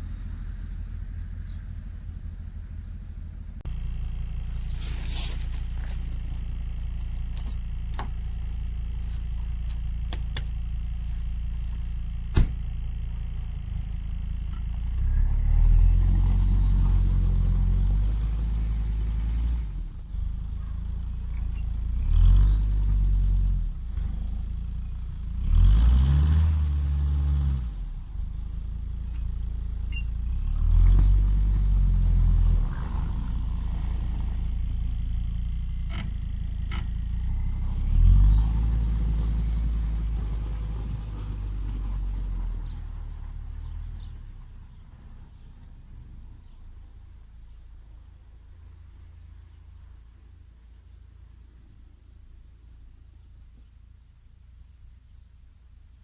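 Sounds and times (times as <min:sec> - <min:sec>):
diesel engine idling and revving: 0:00.0 - 0:56.0.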